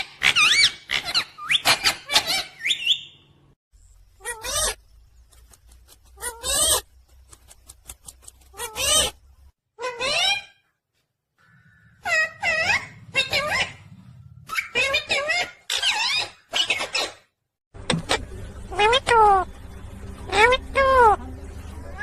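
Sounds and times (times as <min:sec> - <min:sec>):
parrot chirping: 0:00.1 - 0:03.3, 0:08.4 - 0:09.2, 0:09.8 - 0:10.6, 0:11.9 - 0:17.2, 0:18.1 - 0:19.4, 0:20.3 - 0:21.2.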